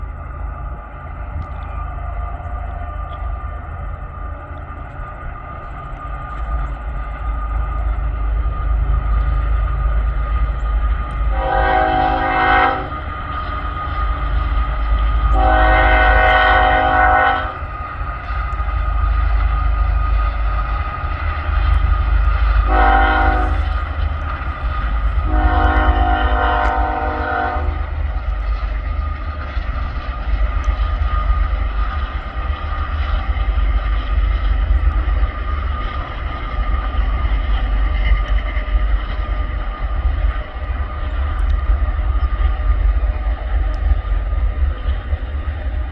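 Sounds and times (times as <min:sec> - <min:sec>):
freight train rumbling past: 0:00.0 - 0:45.9
locomotive air horn blasts: 0:11.3 - 0:13.1, 0:15.3 - 0:17.6, 0:22.6 - 0:24.0, 0:25.2 - 0:27.9.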